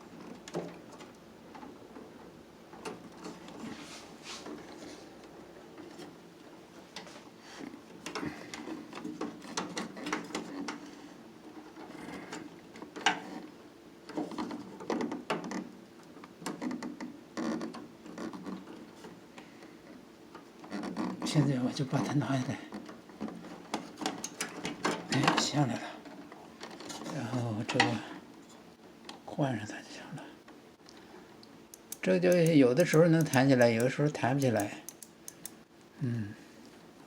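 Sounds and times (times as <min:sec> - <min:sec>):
plastic clicks taps and rattles: 0:31.7 - 0:35.6.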